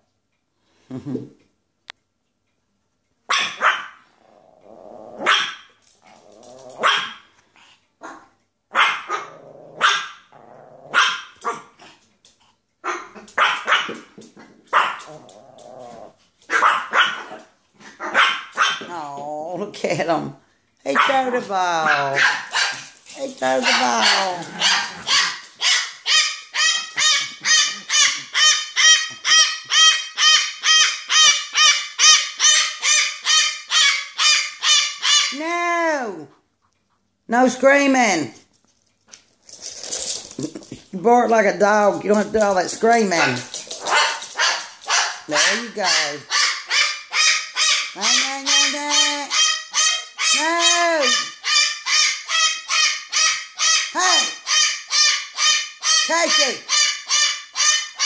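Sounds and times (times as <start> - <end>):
parrot screaming: 23.4 - 35.5, 43.2 - 58.0.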